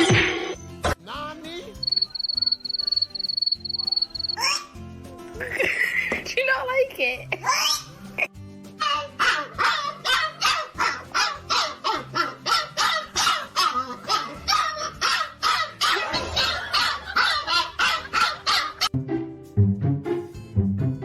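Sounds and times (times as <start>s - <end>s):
dog barking rapidly: 1.8s - 4.7s, 8.9s - 18.9s.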